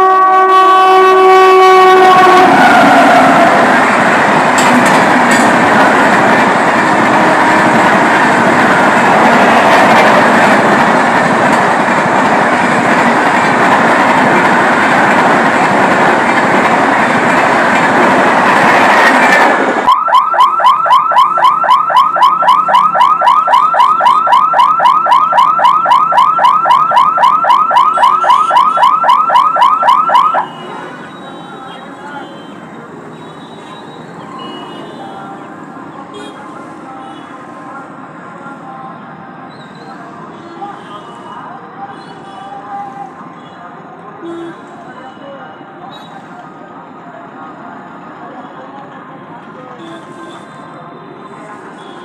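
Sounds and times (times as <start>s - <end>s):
train rushing past: 0.0s - 19.9s.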